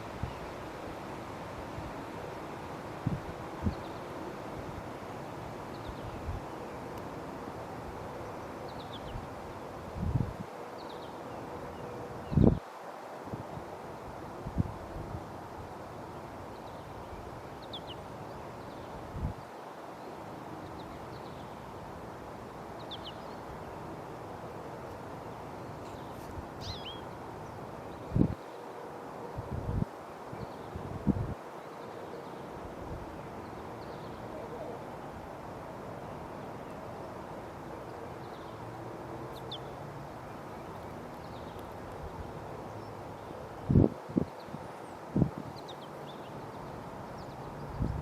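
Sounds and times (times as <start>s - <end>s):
wind rumbling on microphone: 3.0s - 4.0s, 9.9s - 10.5s, 12.2s - 12.6s, 14.4s - 15.3s, 28.0s - 28.4s, 29.4s - 31.4s, 43.6s - 45.6s, 47.6s - 48.0s.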